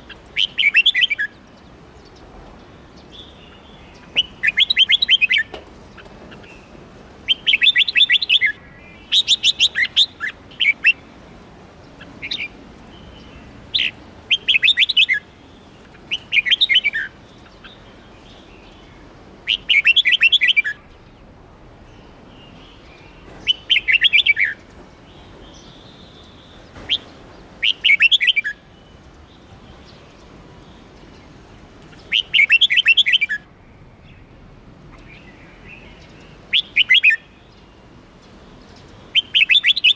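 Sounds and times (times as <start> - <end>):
bird singing chattering notes: 16.0 - 18.9, 22.0 - 28.6, 38.7 - 39.9.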